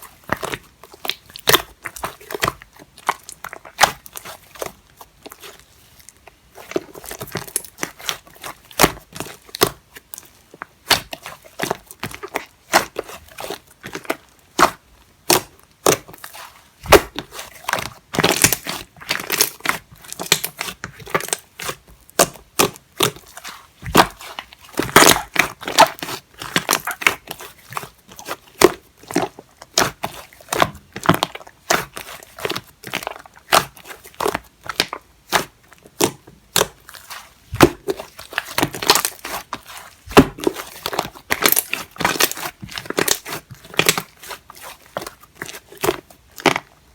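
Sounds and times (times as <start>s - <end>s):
slime squeezed by hand: 15.9s - 17.5s.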